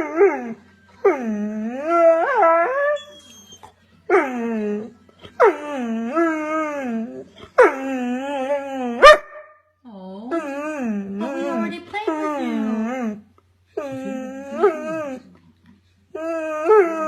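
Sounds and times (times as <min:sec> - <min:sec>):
dog howling: 0:13.8 - 0:15.3.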